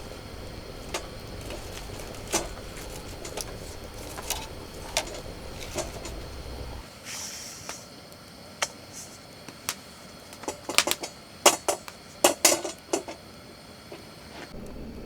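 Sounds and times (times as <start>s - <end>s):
short hiss: 0.0s - 8.0s
metal tableware clinking: 0.8s - 6.8s.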